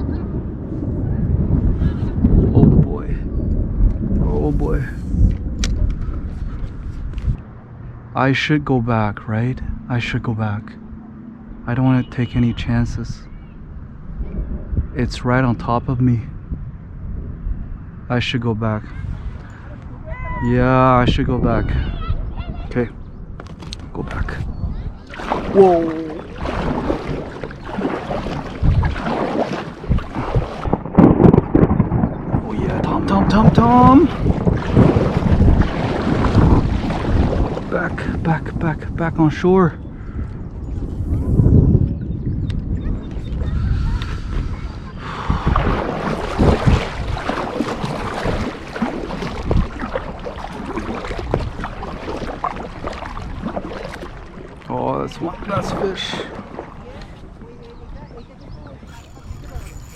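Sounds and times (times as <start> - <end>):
water around kayak: 0.0 - 59.9
wind buffeting microphone: 0.0 - 59.9
low thumps: 26.2 - 39.0.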